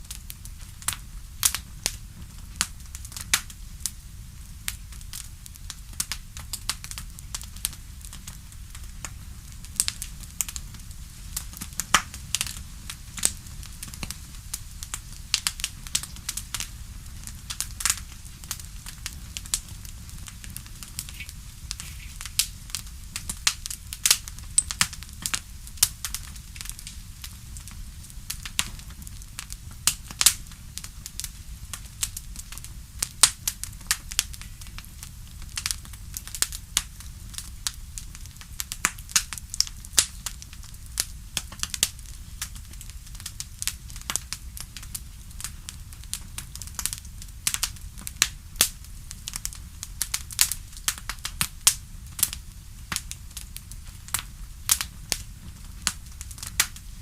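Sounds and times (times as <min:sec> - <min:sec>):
bonfire crackling: 0:00.0 - 0:57.0.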